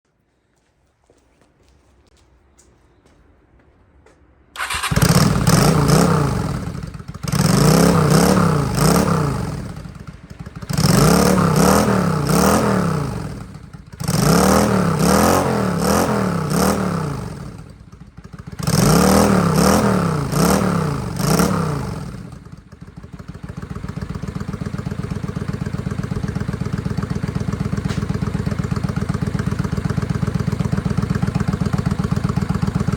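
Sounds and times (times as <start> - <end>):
motorcycle engine idling: 4.6 - 32.9
motorcycle engine revving: 4.6 - 32.9.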